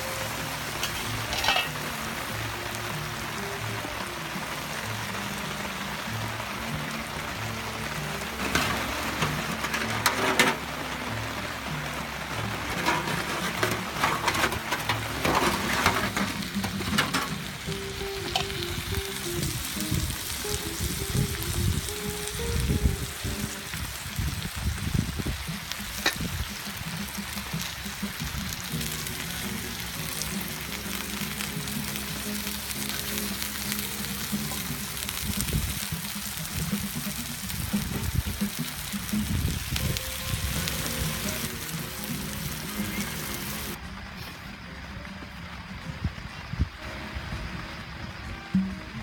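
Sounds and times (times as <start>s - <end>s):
crackling sizzling noise: 0.0s - 49.0s
quiet background music: 0.0s - 49.0s.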